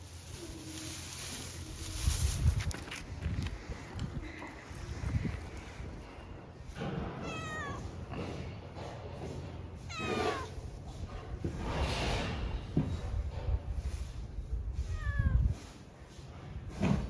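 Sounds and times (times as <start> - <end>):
cat meowing: 7.2 - 7.9, 9.9 - 10.5, 14.9 - 15.4.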